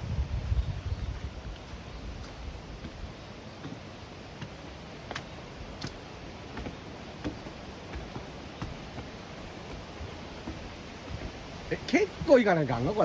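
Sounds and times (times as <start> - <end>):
footsteps on a trail: 0.2 - 13.0
steady hiss: 3.3 - 13.0.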